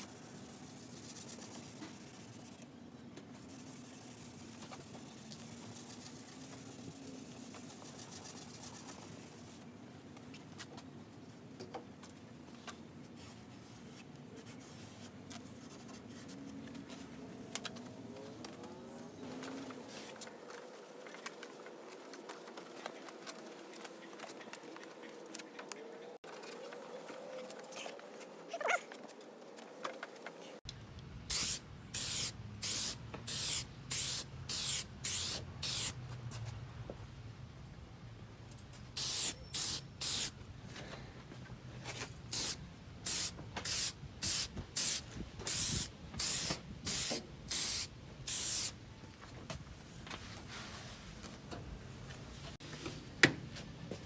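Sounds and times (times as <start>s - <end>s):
spray bottle hissing bursts: 31.3s - 35.9s.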